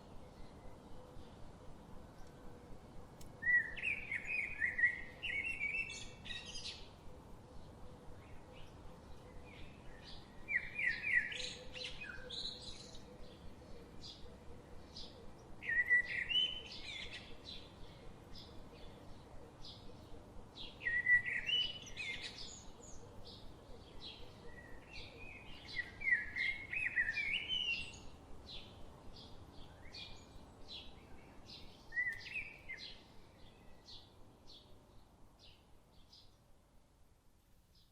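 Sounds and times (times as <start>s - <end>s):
sparrow chirping: 8.2s - 36.4s.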